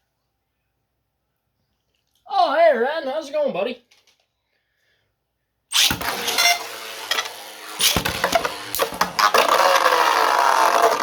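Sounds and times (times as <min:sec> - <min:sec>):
spinning top ripping launch: 0:05.7 - 0:11.0
spinning whir: 0:05.8 - 0:11.0.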